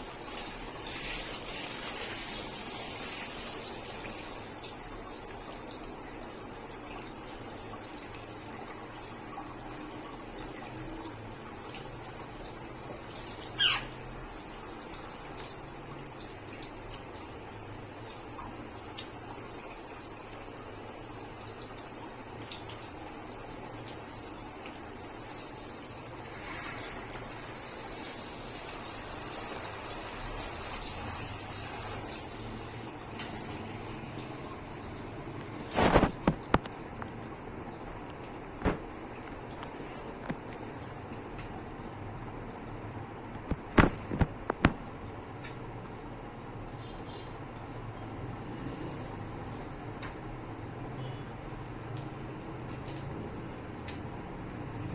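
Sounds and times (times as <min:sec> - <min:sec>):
water running: 0:00.0 - 0:44.9.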